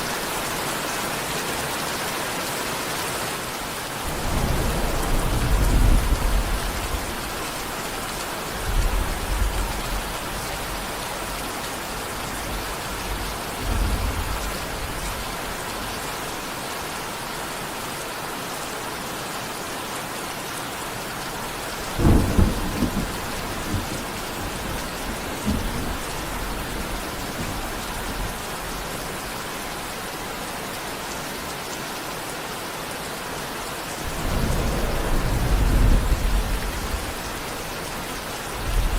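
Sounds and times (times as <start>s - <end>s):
heavy rain: 0.0s - 38.9s
sharp thunderclap: 4.1s - 7.6s, 13.6s - 15.1s, 21.8s - 28.4s, 34.0s - 38.9s
thunder rumbles: 4.1s - 15.9s, 21.5s - 29.6s, 34.0s - 38.9s.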